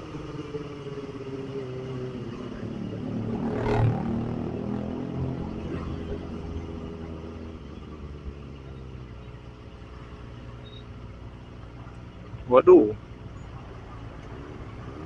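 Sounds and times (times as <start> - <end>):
motorcycle engine idling: 6.2 - 14.2.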